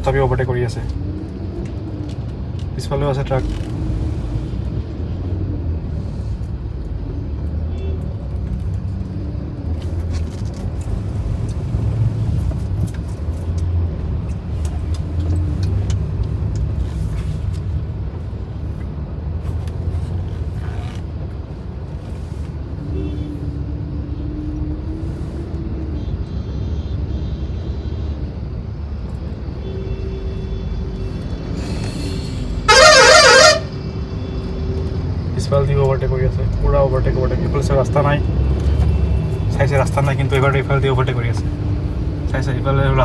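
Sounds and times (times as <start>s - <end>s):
car engine and tyre rumble: 0.0s - 43.0s
short steady tone: 32.7s - 33.7s.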